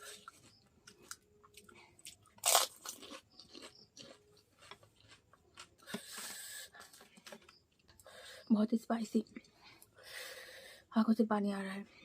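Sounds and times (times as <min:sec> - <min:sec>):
crisp shell crunching: 0:00.1 - 0:05.8
chewing clicks: 0:00.2 - 0:05.9.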